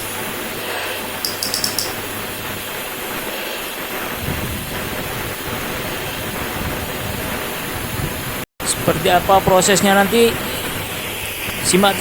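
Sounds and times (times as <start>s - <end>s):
gas torch flame hissing: 0.0s - 12.0s
high ticks: 1.2s - 2.0s.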